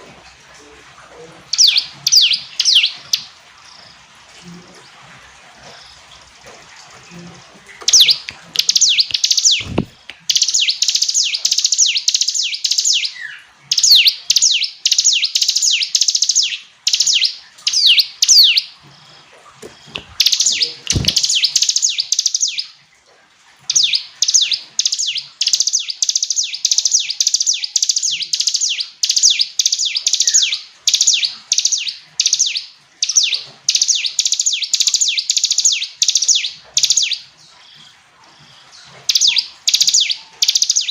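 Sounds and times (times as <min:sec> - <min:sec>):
bird singing high sweeping chirps: 0:01.5 - 0:03.3, 0:07.9 - 0:18.7, 0:20.1 - 0:22.7, 0:23.7 - 0:37.2, 0:39.1 - 0:40.9.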